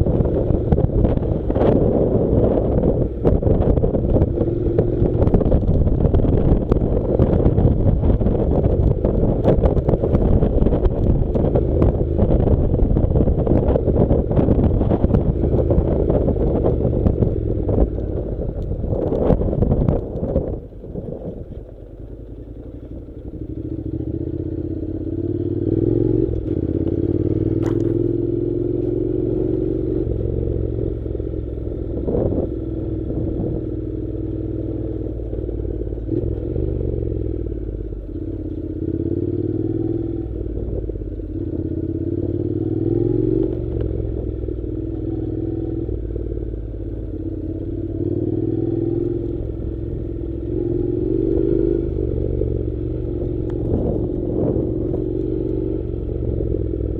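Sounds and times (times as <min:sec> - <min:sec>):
motorcycle engine revving: 0:00.0 - 0:56.9
sharp knocks from rough ground: 0:27.5 - 0:28.0.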